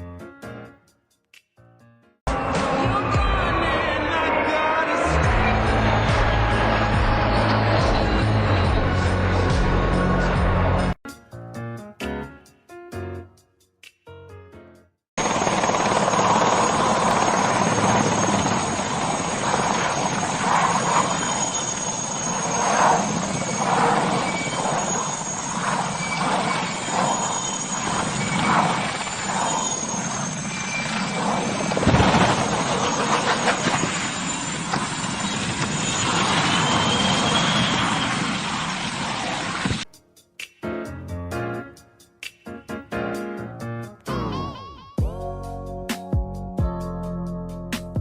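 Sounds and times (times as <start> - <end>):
helicopter rotor and engine noise: 4.3 - 11.0, 15.2 - 39.9
high wavering whine: 15.3 - 39.6.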